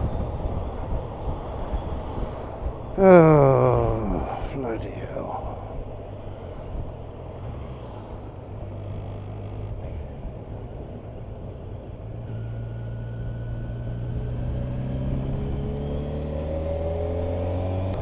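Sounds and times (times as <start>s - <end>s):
wind and road noise: 5.4s - 18.0s.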